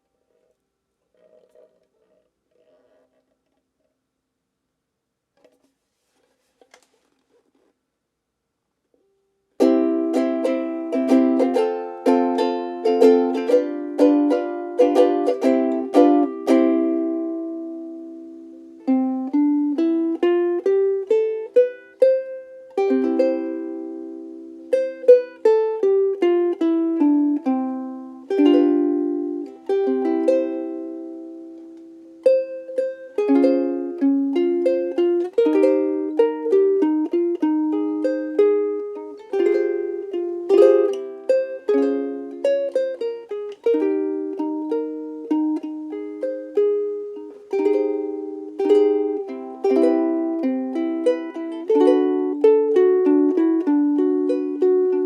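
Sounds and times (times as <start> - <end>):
ukulele fingerstyle playing: 9.6 - 55.0.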